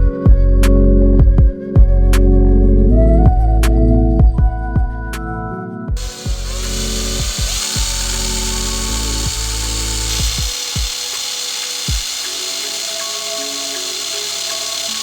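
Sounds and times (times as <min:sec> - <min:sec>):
background music: 0:00.0 - 0:15.0
power tool running: 0:06.0 - 0:15.0.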